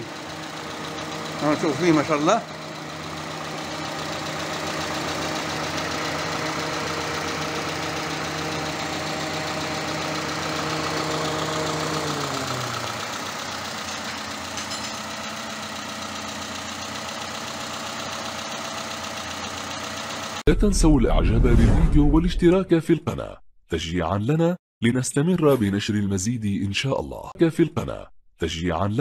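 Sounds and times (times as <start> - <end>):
car engine idling: 0.0 - 20.4
engine hum: 0.0 - 21.9.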